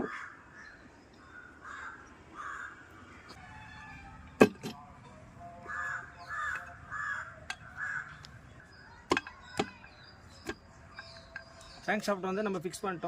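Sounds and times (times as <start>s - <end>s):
crow cawing: 0.0s - 4.3s, 5.5s - 8.4s
sharp metal knocks: 9.0s - 11.8s.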